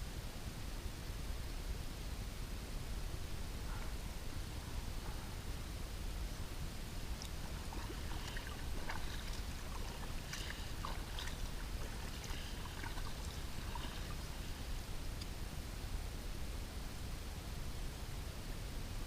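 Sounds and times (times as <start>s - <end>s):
steady low rumble: 0.0s - 19.0s
paddle splashes and drips: 7.2s - 14.7s.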